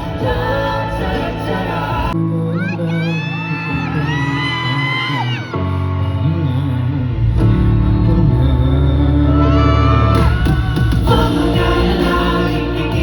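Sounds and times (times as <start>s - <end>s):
crowd whooping: 0.0s - 6.8s, 9.3s - 11.2s
live pop music: 0.0s - 13.0s
singer holding long notes: 0.0s - 13.0s.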